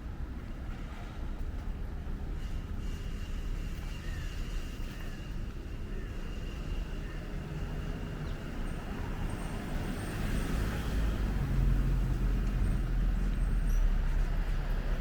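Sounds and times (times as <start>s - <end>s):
vehicle engine rumbling: 0.1s - 15.0s.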